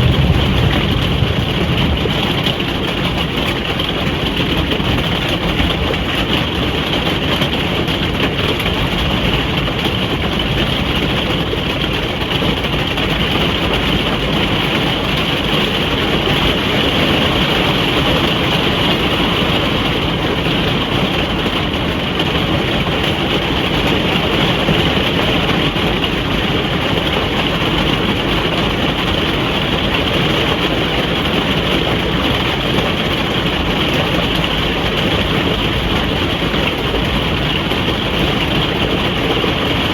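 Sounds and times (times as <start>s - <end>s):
rain drumming on a roof: 0.0s - 39.9s.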